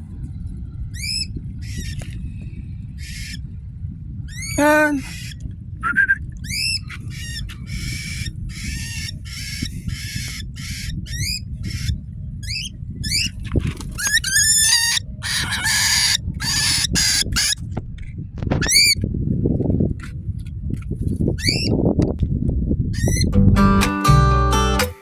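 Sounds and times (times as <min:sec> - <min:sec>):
low background rumble: 0:00.0 - 0:23.8
cockatiel chirps and screeches: 0:01.0 - 0:02.0, 0:03.0 - 0:03.4, 0:04.3 - 0:05.4, 0:06.4 - 0:13.4, 0:14.0 - 0:17.6, 0:18.6 - 0:19.0, 0:21.4 - 0:21.7, 0:23.0 - 0:23.3.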